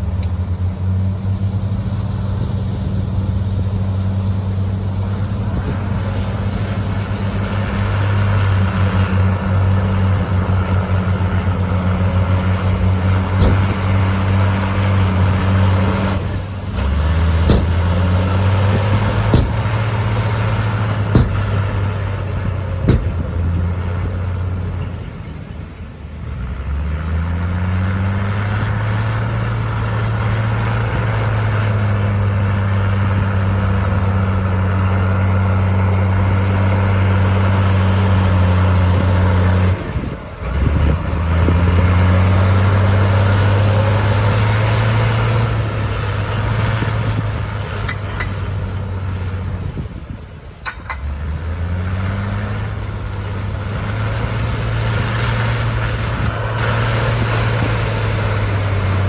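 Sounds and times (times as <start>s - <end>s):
bulldozer diesel engine under load: 0.0s - 59.0s
sharp metal clanks: 13.4s - 14.3s, 17.3s - 22.0s, 22.8s - 23.6s, 47.9s - 48.9s, 50.6s - 51.1s.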